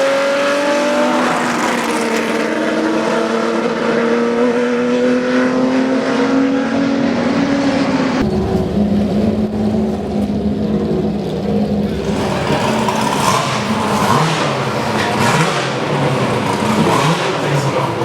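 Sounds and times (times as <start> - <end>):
racing engine accelerating: 0.0 - 18.0
lower steady engine note: 6.0 - 18.0.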